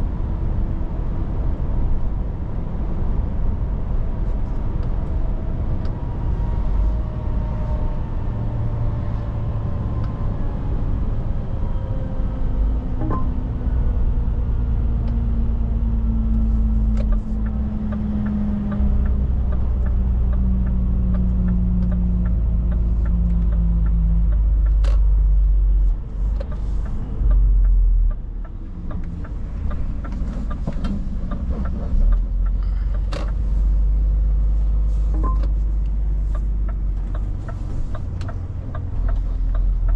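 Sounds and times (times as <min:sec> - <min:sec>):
truck diesel engine rumbling: 0:12.7 - 0:39.9.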